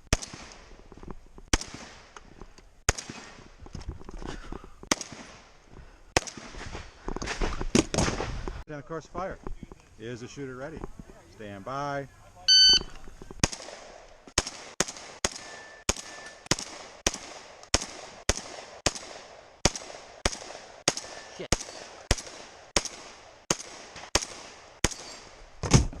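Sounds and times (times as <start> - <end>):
shotgun shots echoing: 0.1 - 0.6, 1.5 - 2.2, 2.9 - 3.4, 4.9 - 5.5, 13.4 - 25.4.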